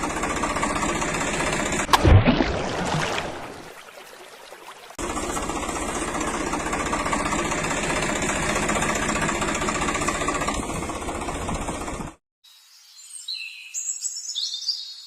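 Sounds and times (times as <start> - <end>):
engine knocking steadily: 0.0 - 1.9, 5.0 - 12.2.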